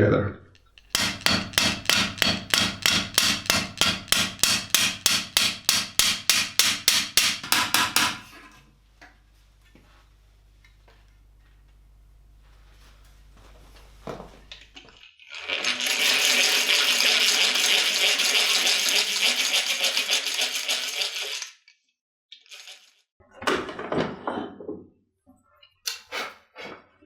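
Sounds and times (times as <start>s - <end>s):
fine metallic rattling: 0.8s - 7.4s.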